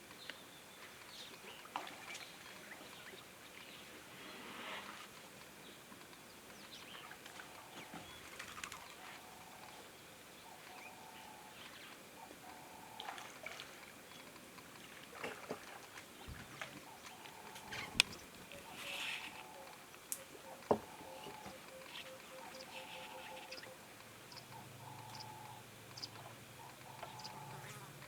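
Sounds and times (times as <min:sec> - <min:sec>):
low background hiss: 0:00.0 - 0:28.0
small clicks and crackles: 0:05.0 - 0:07.4
short repeated animal calls: 0:17.0 - 0:25.6.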